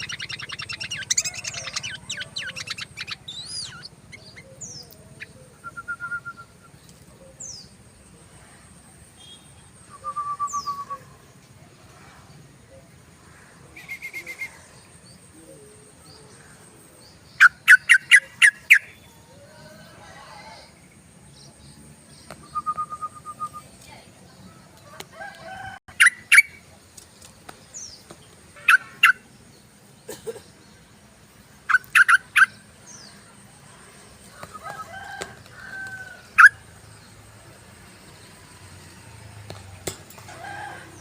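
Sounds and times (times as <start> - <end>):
bird chattering calls: 0.0 - 5.6, 17.4 - 19.0, 25.9 - 26.7, 28.5 - 29.3, 31.6 - 33.5, 36.3 - 36.7.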